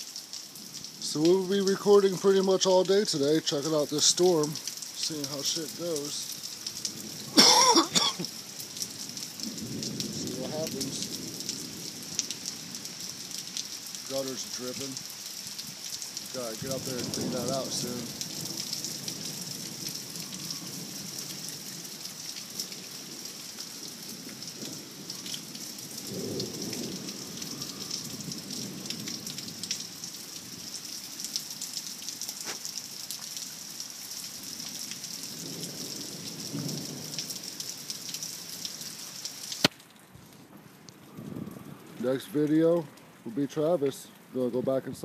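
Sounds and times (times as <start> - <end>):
heavy rain falling: 0.0 - 45.0
thunder rumbling: 9.3 - 12.9, 16.4 - 21.6, 25.8 - 29.5.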